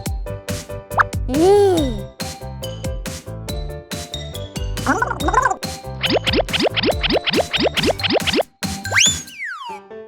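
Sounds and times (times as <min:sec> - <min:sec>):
children's music: 0:01.3 - 0:07.6.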